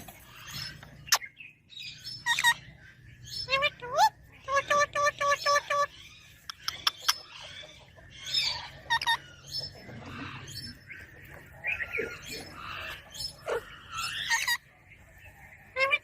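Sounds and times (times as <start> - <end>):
parakeet chattering: 2.1 - 2.6.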